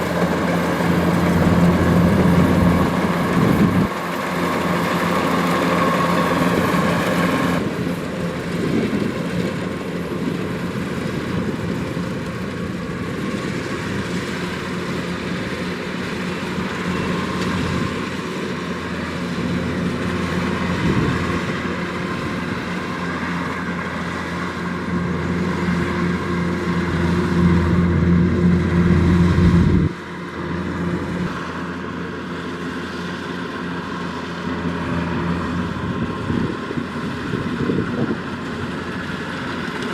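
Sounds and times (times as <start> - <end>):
combine harvester running: 0.0 - 39.9
deep drone: 24.9 - 31.5.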